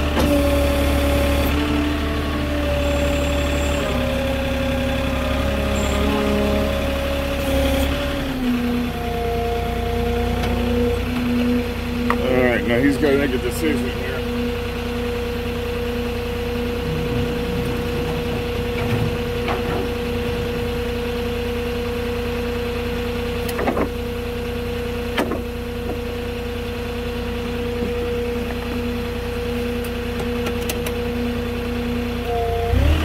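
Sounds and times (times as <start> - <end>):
forklift engine idling: 0.0 - 33.0.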